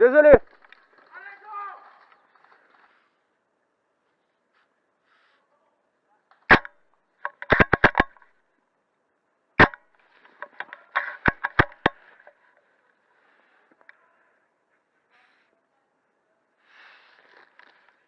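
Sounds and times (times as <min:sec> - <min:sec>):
airsoft gun shots: 0:06.5 - 0:08.2, 0:09.6 - 0:09.8
clicks: 0:09.6 - 0:12.4.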